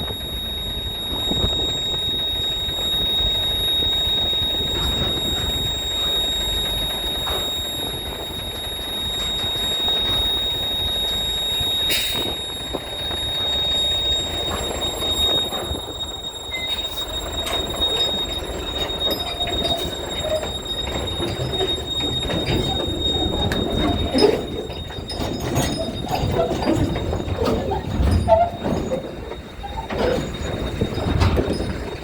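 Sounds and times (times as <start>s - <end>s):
low machinery rumble: 0.0s - 32.0s
short squeals: 0.0s - 32.0s
steady high whine: 0.0s - 32.0s
metallic clanks: 11.8s - 12.9s, 16.5s - 32.0s.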